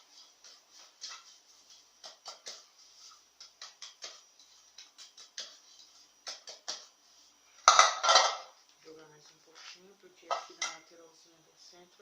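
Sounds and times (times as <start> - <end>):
flour tapping in cake pan: 0.4 - 7.0.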